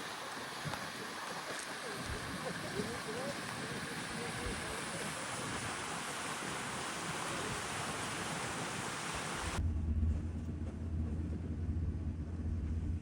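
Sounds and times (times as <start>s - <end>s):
low engine hum: 9.0s - 13.0s.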